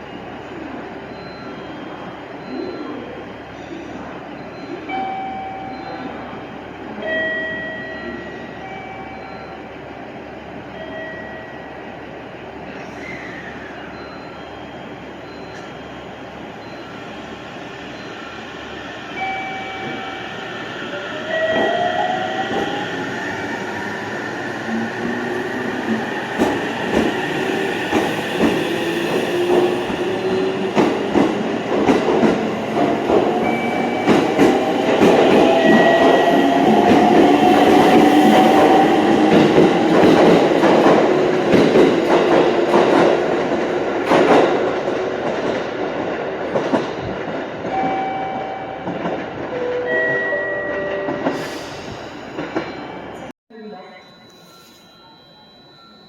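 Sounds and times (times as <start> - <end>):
train wheels clicking over joints: 26.3 - 47.3.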